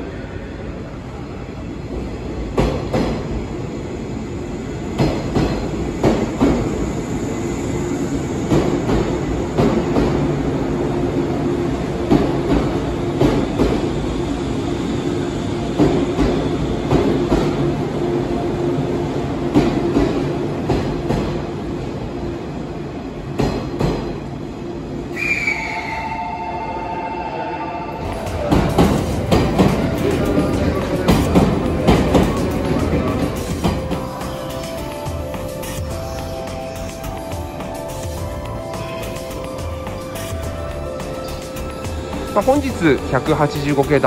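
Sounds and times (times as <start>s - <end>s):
electric train hum: 0.0s - 44.0s
train wheels clacking over rail joints: 28.2s - 38.2s.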